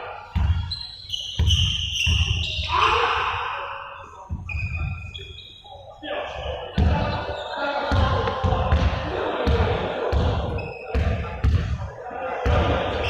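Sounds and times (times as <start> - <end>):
basketball bouncing on gym floor: 0.4 - 0.7, 1.4 - 2.6, 6.8 - 7.2, 7.9 - 11.8
high squeaks: 0.5 - 3.2, 4.0 - 6.0.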